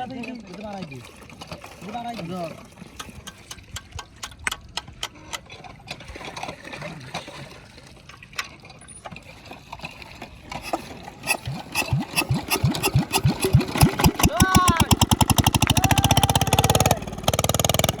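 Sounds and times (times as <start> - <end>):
small engine starting up: 8.9 - 18.0.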